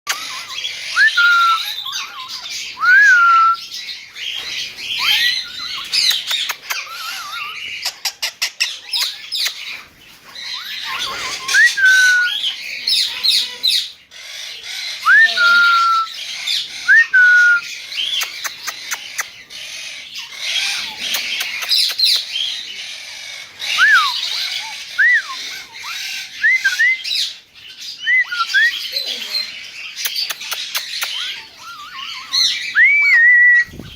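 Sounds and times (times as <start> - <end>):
bird chirps and squawks: 0.1 - 2.8, 3.6 - 16.9, 17.6 - 33.9.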